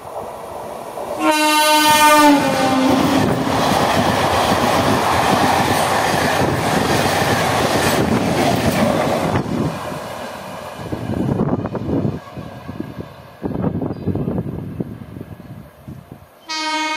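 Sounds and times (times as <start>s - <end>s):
train wheels rushing and clacking: 1.8s - 13.7s.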